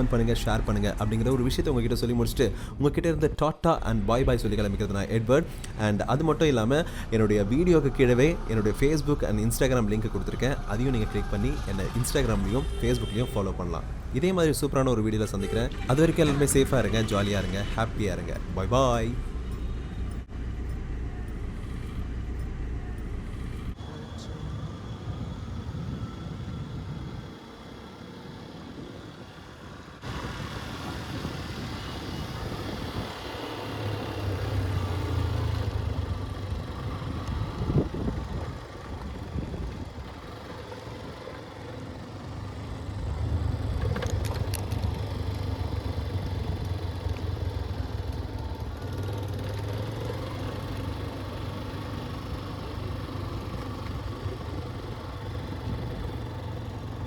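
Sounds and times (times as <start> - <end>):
road traffic noise: 0.0 - 57.0
motorcycle engine running: 30.9 - 57.0.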